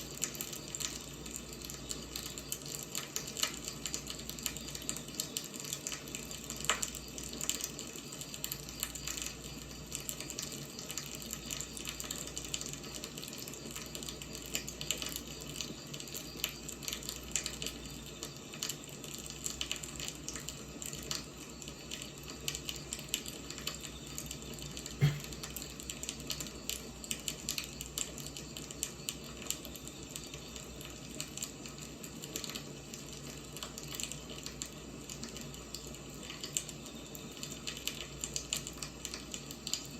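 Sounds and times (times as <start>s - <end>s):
firewood crackling and popping: 0.1s - 25.2s.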